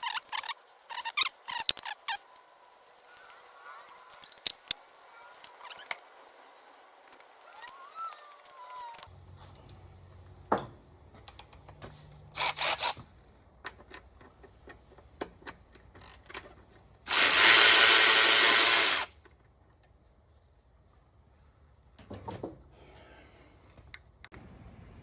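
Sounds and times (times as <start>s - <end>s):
power tool running: 17.1s - 19.1s.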